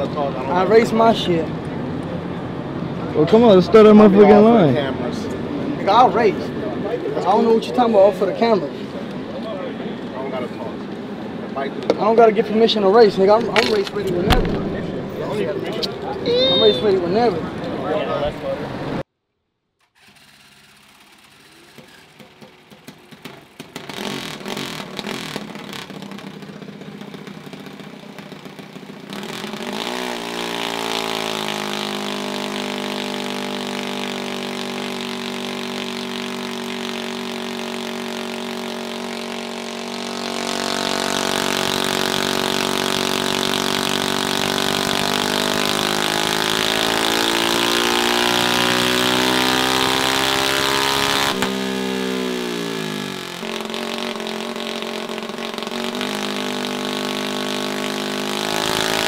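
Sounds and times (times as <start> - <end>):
small engine popping and revving: 13.3 - 16.9, 19.8 - 59.0.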